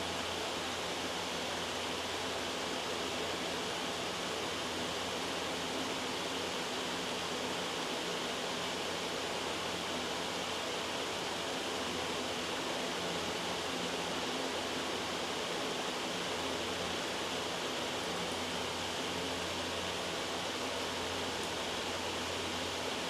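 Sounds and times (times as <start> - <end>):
white noise hiss: 0.0 - 23.0.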